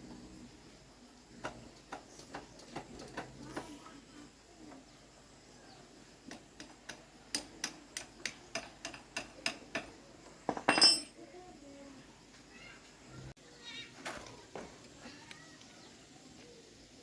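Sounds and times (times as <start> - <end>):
metal clatter with ringing: 10.6 - 11.2.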